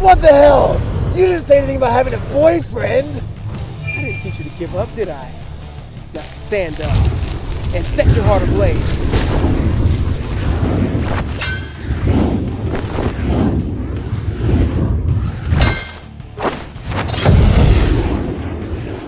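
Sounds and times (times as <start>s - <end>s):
low rumbling blast: 0.0s - 15.6s, 17.2s - 19.0s
music: 0.0s - 19.0s
sharp ringing hits: 3.8s - 6.0s
heavy booms and thuds: 4.7s - 19.0s.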